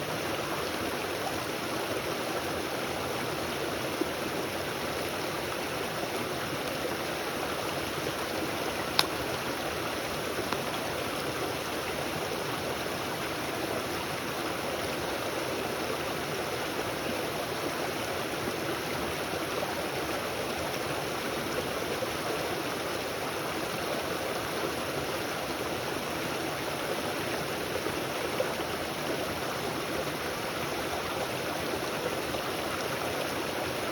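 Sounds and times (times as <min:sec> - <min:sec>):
stream flowing: 0:00.0 - 0:33.9
sharp clicks: 0:08.9 - 0:09.3.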